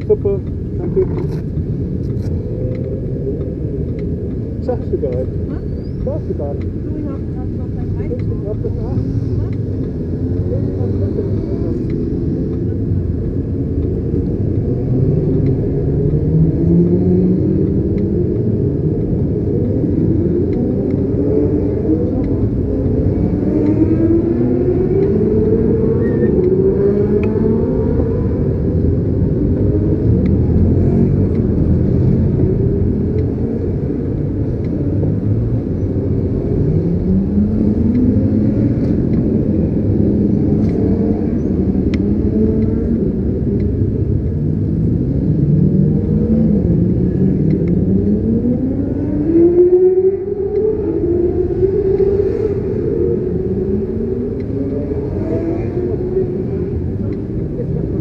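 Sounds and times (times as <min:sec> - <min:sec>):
motorcycle engines revving: 0:00.0 - 0:58.0.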